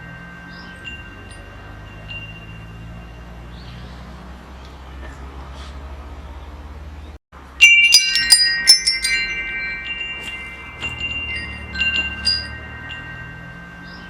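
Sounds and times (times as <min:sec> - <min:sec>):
metal wind chimes clanging: 0:00.0 - 0:04.5, 0:07.4 - 0:14.0.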